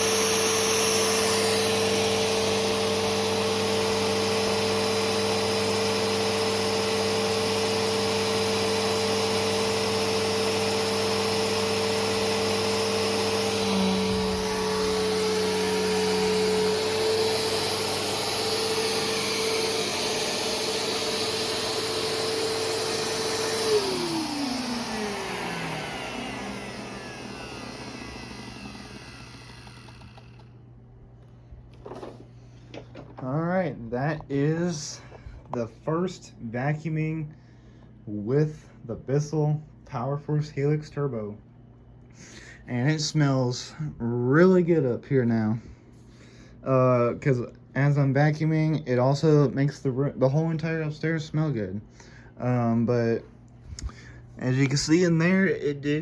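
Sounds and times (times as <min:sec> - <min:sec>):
vacuum cleaner motor whine: 0:00.0 - 0:33.2.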